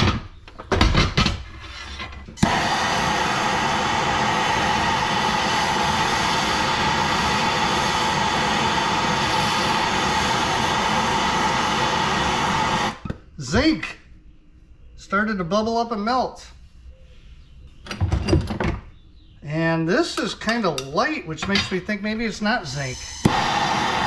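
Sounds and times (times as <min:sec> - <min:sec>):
gas torch hissing: 0:02.4 - 0:13.1, 0:22.6 - 0:24.0
gas torch ignition click: 0:02.4 - 0:13.1, 0:23.2 - 0:24.0.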